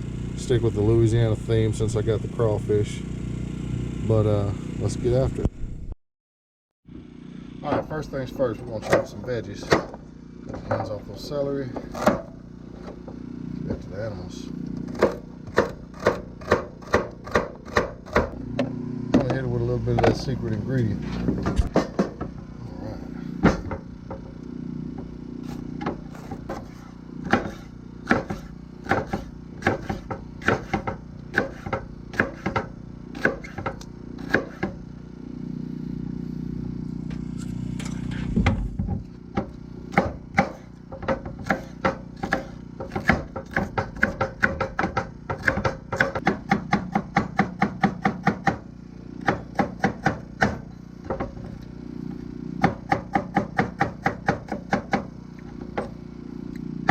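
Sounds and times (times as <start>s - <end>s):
steady low hum: 6.9s - 56.9s
knife chopping on board: 8.8s - 10.0s, 14.9s - 18.4s, 23.4s - 24.2s, 25.4s - 34.8s, 38.8s - 48.6s, 49.2s - 51.4s, 52.6s - 55.1s.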